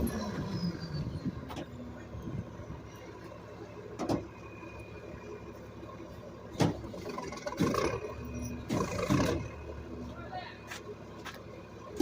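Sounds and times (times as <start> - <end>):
garbage truck engine running: 0.0 - 12.0.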